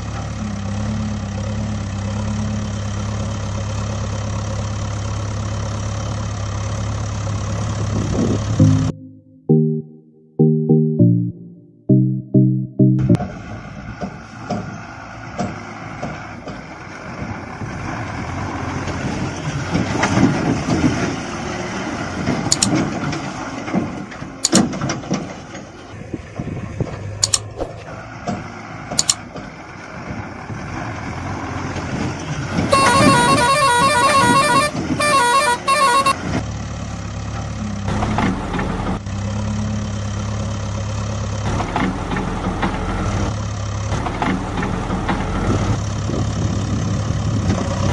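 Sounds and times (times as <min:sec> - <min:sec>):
vehicle engine running: 0:00.0 - 0:09.1, 0:11.3 - 0:47.9
sharp clicks: 0:22.5 - 0:22.8, 0:24.4 - 0:24.7, 0:27.2 - 0:27.8, 0:29.0 - 0:29.2
loud horn blasts: 0:32.7 - 0:36.4.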